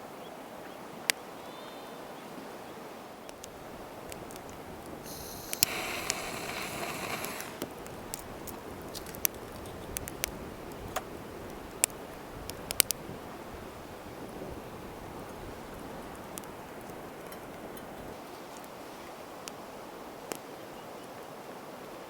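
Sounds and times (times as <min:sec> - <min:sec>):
campfire crackling and popping: 0:03.3 - 0:13.0
hissing rush: 0:05.0 - 0:07.7.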